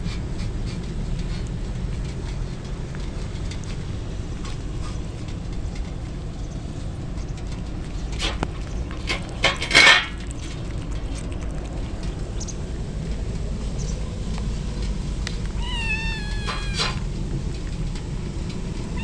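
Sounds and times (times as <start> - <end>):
clicks and rattling clatter: 1.8 - 12.4.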